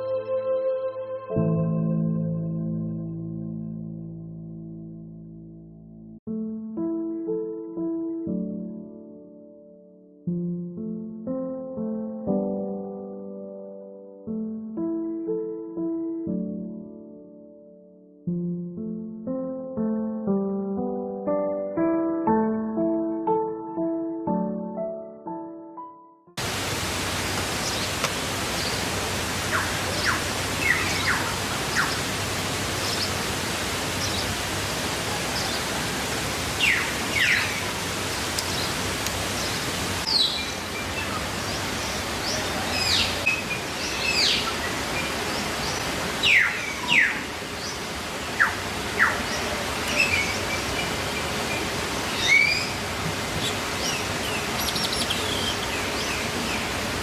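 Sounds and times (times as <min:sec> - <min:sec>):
stream water rushing: 0:26.4 - 0:57.0
birds chirping: 0:27.1 - 0:56.9.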